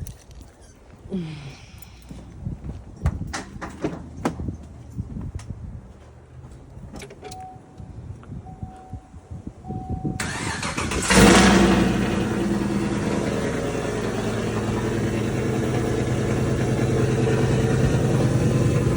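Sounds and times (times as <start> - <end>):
engine starter cranking: 10.2 - 16.4
truck engine revving and idling: 10.2 - 18.9.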